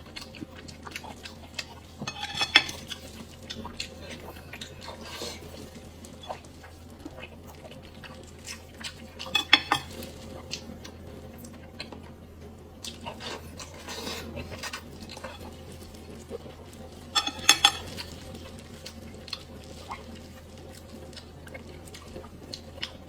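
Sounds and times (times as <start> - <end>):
utensils clinking against a dish: 1.5 - 3.3, 9.2 - 10.2, 13.0 - 15.8, 17.0 - 20.9.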